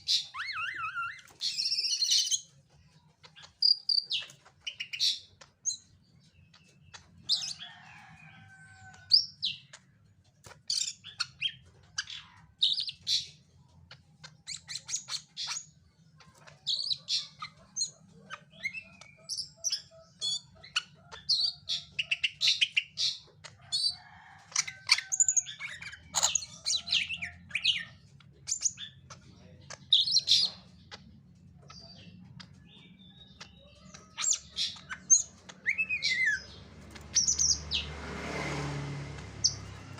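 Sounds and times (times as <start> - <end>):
bird chirping and whistling: 0.0 - 2.4, 33.9 - 36.5.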